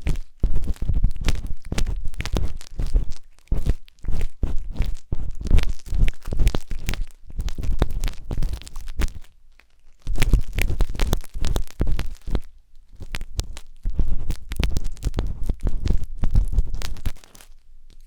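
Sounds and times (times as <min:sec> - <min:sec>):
wooden skewers scraping microphone: 0:00.0 - 0:09.2, 0:13.0 - 0:17.4.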